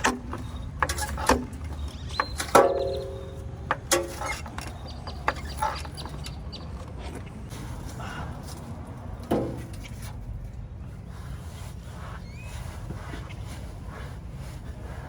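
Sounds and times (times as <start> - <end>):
metal clanks and knocks: 0.0 - 6.2, 9.2 - 10.0.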